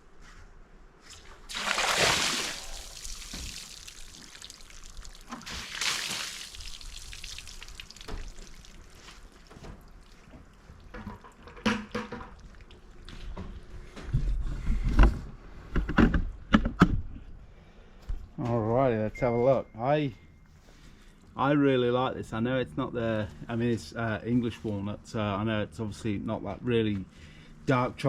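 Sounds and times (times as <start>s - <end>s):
water splashing onto wood: 1.4s - 13.1s.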